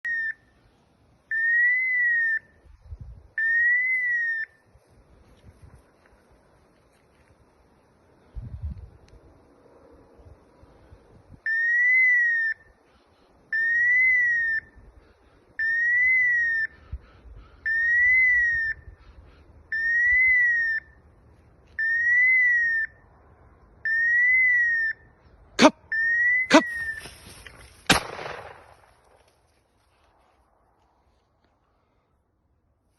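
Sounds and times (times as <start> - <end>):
rising and falling whistle tone: 13.5 - 14.8, 15.6 - 16.7, 17.7 - 18.9, 19.7 - 21.0, 21.8 - 23.0, 23.8 - 25.1, 25.9 - 27.1
sharp cracks: 26.5 - 29.5.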